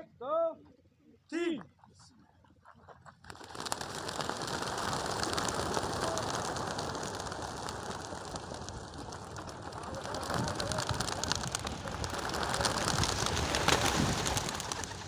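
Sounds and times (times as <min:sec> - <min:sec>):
pigeon wingbeats clattering: 0:02.5 - 0:15.0.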